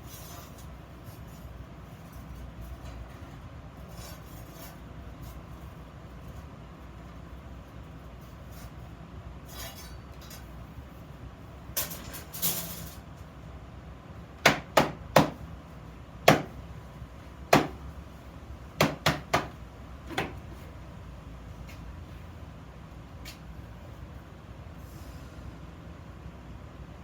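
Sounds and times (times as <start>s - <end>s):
metal scrape: 0.0s - 6.5s, 8.1s - 10.5s
metal knocks on iron: 14.4s - 15.4s, 16.2s - 16.6s, 17.5s - 17.8s, 18.8s - 20.4s.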